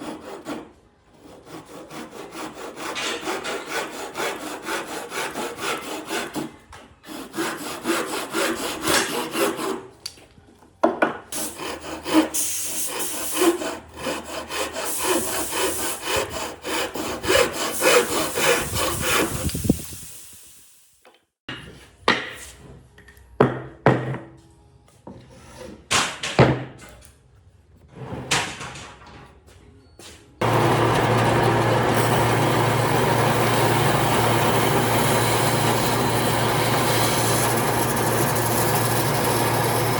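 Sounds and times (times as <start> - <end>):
hand tool rasping wood: 1.2 - 9.8, 11.4 - 19.8, 30.4 - 39.9.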